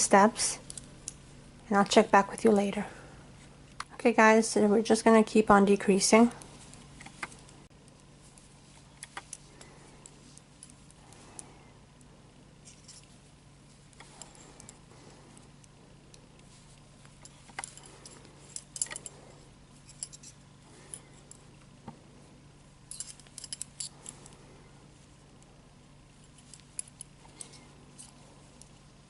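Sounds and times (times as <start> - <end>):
faint steady hum: 0.0 - 29.0
knitting needles clicking: 6.7 - 12.1.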